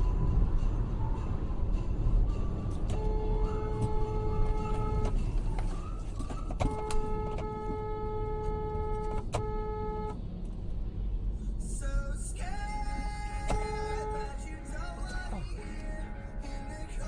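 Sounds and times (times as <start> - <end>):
road and engine noise: 0.0 - 17.0
car horn blasts: 2.9 - 5.2, 6.6 - 10.2, 13.4 - 15.2.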